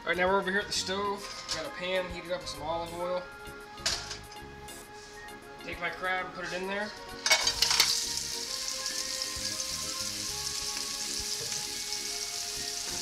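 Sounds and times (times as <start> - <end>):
crab frying in oil: 7.3 - 13.0.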